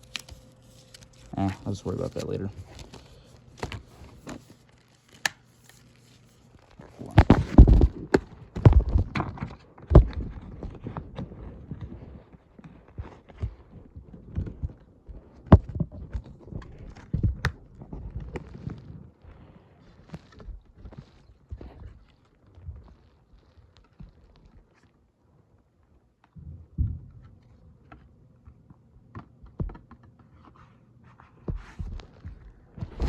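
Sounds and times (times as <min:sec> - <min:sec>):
plastic disc case clicking and rattling: 0:00.0 - 0:09.6.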